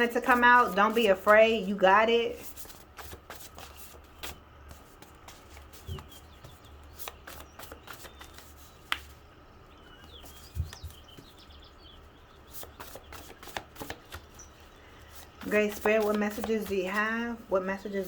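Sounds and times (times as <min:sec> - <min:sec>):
tarot cards shuffling: 0:02.4 - 0:09.2, 0:12.6 - 0:17.0.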